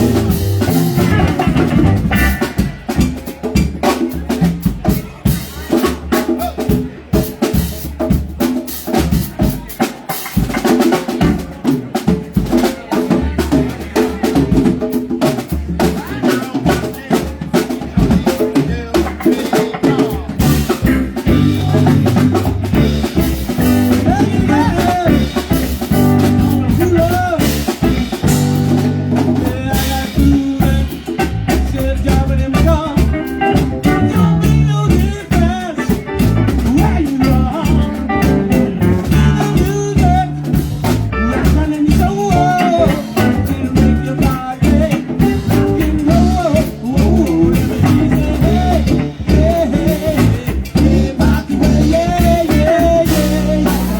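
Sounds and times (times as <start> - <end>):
live band playing: 0.0 - 53.9
person singing: 18.3 - 53.9.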